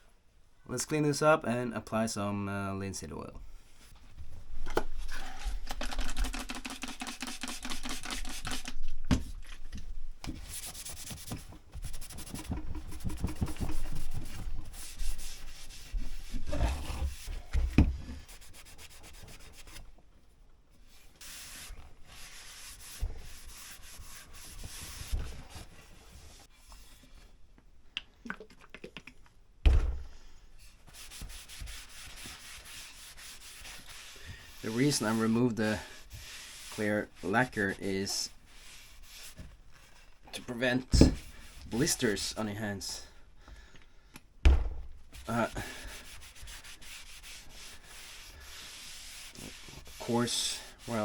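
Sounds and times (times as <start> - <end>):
hand-sanding wooden handle: 6.2 - 8.8, 10.5 - 17.3, 21.2 - 26.4, 30.9 - 39.5, 45.2 - 51.0.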